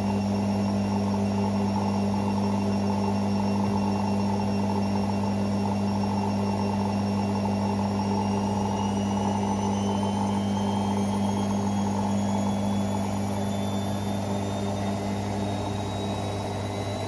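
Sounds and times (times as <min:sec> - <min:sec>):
faint higher whine: 0:00.0 - 0:17.0
washing machine motor hum: 0:00.0 - 0:17.0.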